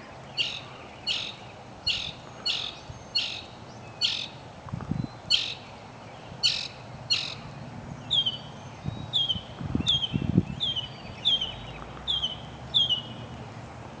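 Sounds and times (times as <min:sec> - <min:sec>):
mockingbird singing: 0:00.3 - 0:04.4, 0:05.0 - 0:13.4.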